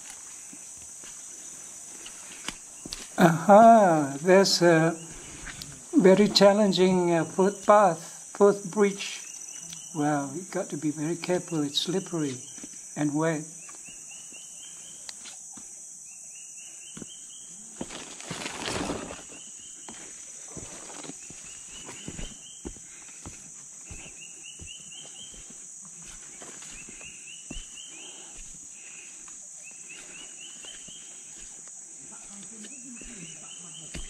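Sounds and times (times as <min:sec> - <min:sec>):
insects droning: 0:00.0 - 0:34.0
rustling: 0:17.8 - 0:19.5
footsteps: 0:17.8 - 0:34.0.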